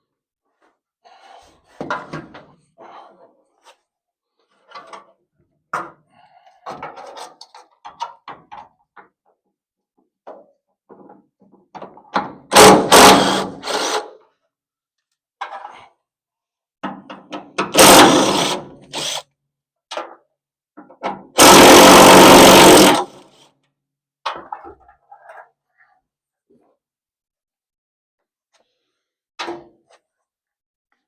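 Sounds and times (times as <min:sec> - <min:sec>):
power tool running: 0:12.6 - 0:14.0, 0:17.8 - 0:19.2, 0:21.4 - 0:23.2.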